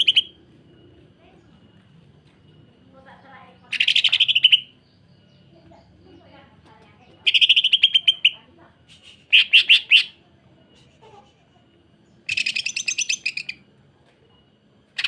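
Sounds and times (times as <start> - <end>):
sharp loud bird notes: 0.0 - 0.4, 3.6 - 5.0, 7.2 - 8.4, 12.2 - 13.6.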